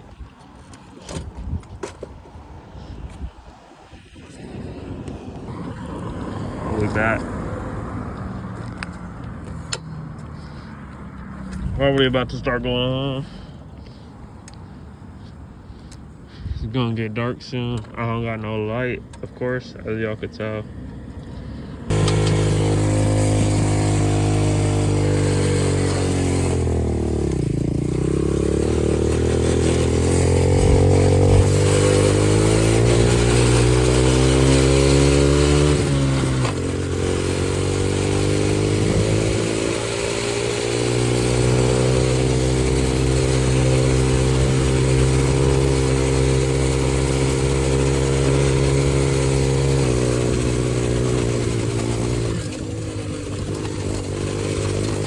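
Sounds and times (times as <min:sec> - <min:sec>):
dirt bike engine revving: 0:04.2 - 0:13.5, 0:20.4 - 0:55.0.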